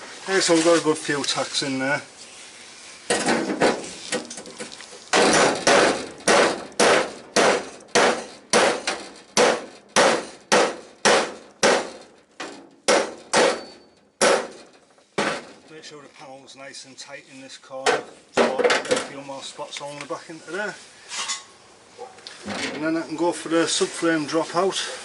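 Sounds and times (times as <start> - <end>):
hammer striking metal panel: 3.1 - 3.8, 5.1 - 15.6.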